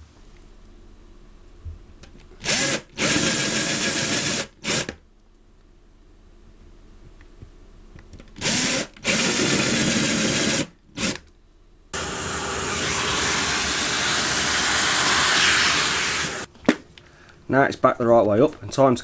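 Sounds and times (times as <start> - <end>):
power drill boring holes: 2.4 - 4.9, 8.4 - 11.2, 12.0 - 16.5.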